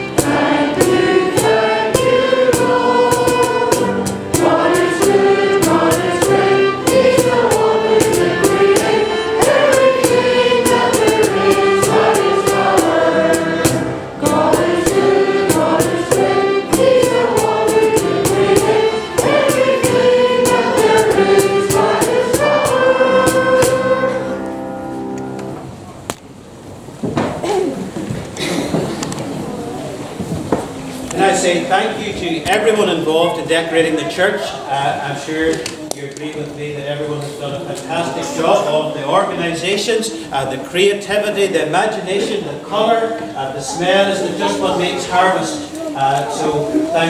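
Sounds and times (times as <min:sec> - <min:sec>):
church choir singing: 0:00.0 - 0:25.4
rhythmic accompaniment: 0:00.0 - 0:25.4.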